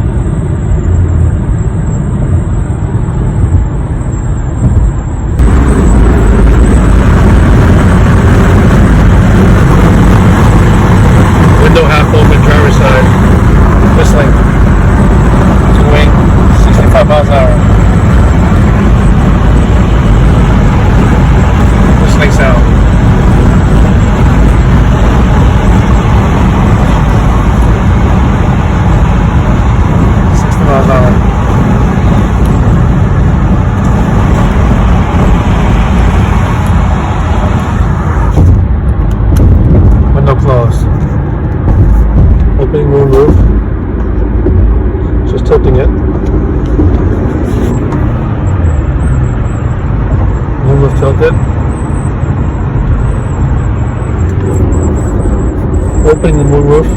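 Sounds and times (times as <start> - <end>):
car cabin road and wind noise: 0.0 - 56.9
high-pitched wind whistle: 51.4 - 56.9.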